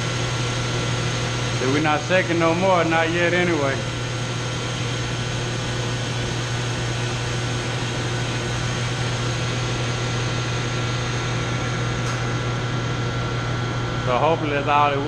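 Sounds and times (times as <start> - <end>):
pump motor humming: 0.0 - 15.0.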